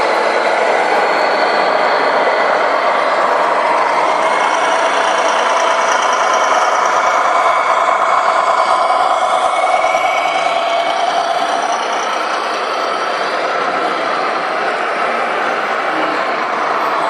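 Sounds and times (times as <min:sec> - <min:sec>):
model truck motor whirring: 0:00.0 - 0:17.0
thin even whine: 0:00.0 - 0:17.0.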